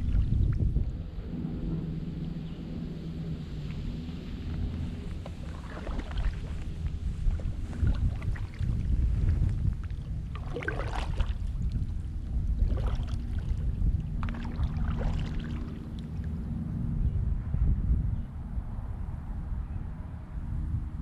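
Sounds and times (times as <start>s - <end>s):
wind rumble on microphone: 0.0s - 21.0s
paddle strokes splashing water: 4.2s - 16.4s.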